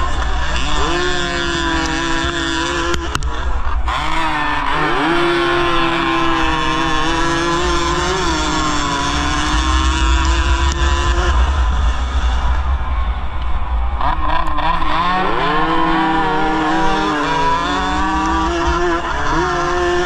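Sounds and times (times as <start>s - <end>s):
motorcycle engine at high revs: 0.0s - 12.6s, 13.9s - 20.0s
wind buffeting microphone: 7.5s - 19.3s.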